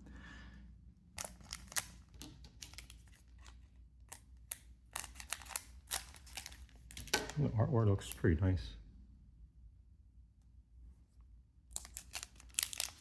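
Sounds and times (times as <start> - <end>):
trading cards clicking and snapping: 1.2 - 7.4, 11.8 - 13.0.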